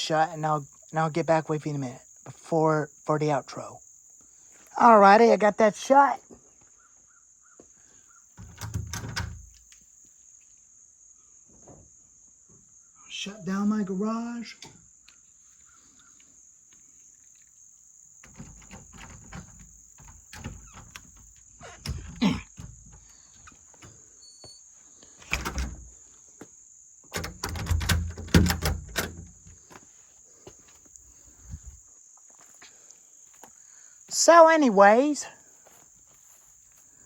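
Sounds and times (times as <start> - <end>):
crickets chirping: 0.0 - 37.0
garage door knocking and rattling: 8.4 - 9.5, 25.3 - 25.9, 27.1 - 29.5.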